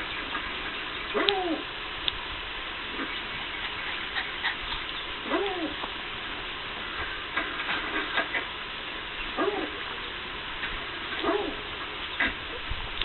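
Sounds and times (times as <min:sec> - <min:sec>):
dog whimpering yelps: 0:01.2 - 0:01.7, 0:05.2 - 0:05.8, 0:09.4 - 0:09.8, 0:11.2 - 0:11.6.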